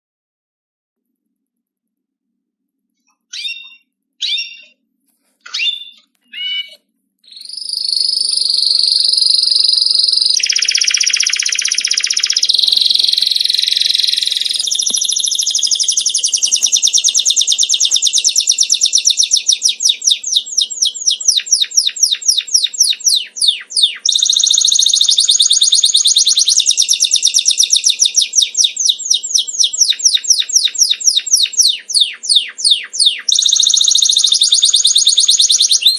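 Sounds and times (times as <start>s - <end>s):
songbird chirping and trilling: 3.1s - 4.8s, 5.4s - 35.9s.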